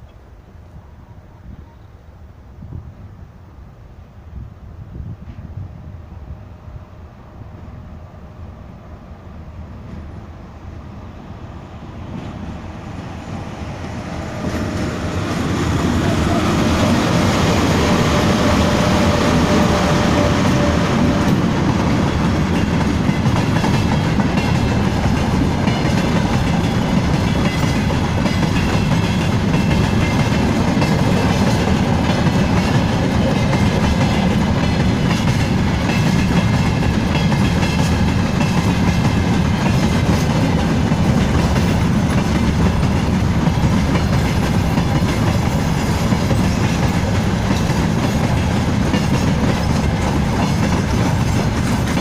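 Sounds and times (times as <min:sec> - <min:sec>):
freight train wheels clattering: 0:12.1 - 0:52.0.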